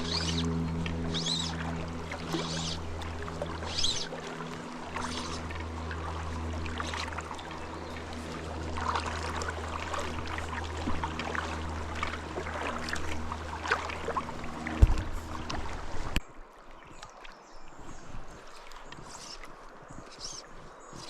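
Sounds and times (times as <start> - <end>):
steady low hum: 0.0 - 16.2
creek water trickling: 0.0 - 21.0
small water splashes: 0.0 - 21.0.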